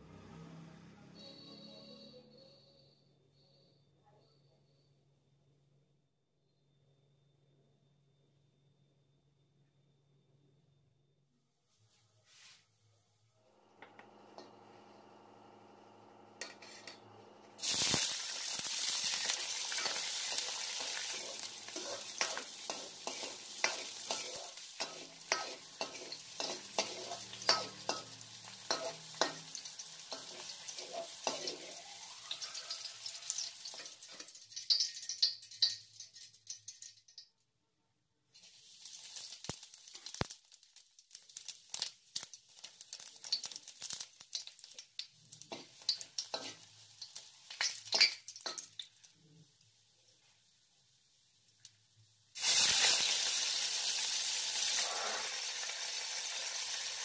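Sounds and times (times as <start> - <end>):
metal ladle scraping pan: 16.4 - 17.0, 19.6 - 37.0, 45.5 - 48.6
vegetables sizzling in hot oil: 17.5 - 36.9, 38.4 - 57.0.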